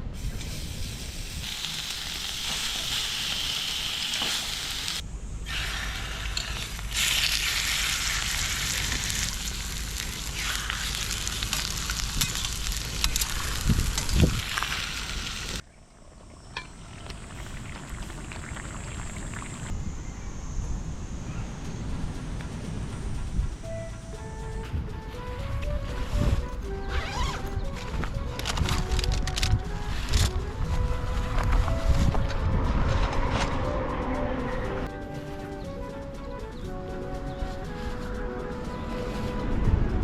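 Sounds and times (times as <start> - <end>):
food sizzling in a pan: 0.6 - 5.0, 5.6 - 15.6.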